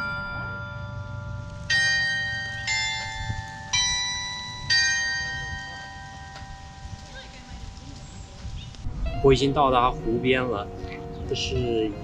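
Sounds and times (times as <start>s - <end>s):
bell-like chime tones: 0.0s - 7.3s.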